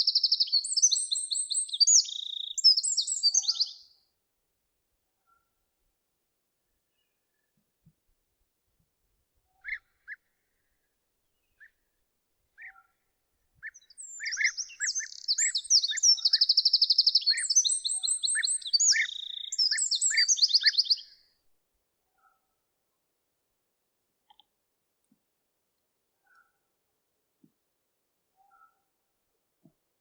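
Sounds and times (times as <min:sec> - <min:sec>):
bird warbling song with trills: 0:00.0 - 0:03.8, 0:13.6 - 0:21.1
bird call notes: 0:13.7 - 0:21.0.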